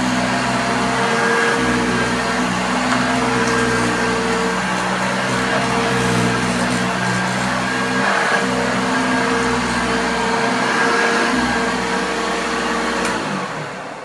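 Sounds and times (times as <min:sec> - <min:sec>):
vacuum cleaner on carpet: 0:00.0 - 0:14.0.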